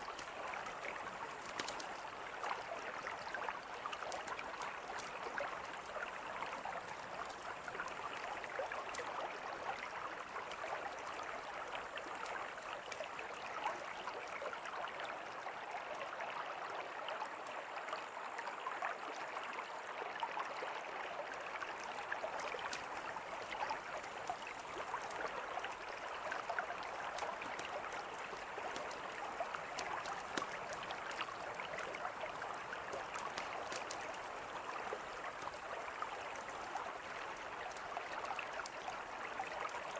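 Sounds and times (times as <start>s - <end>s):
river flowing: 0.0s - 39.9s
campfire crackling: 4.1s - 5.1s, 22.2s - 37.9s.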